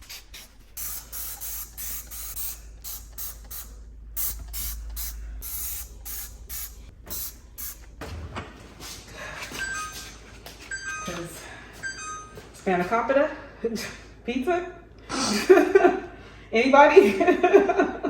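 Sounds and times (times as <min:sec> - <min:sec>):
spray bottle squirting: 0:00.0 - 0:07.9.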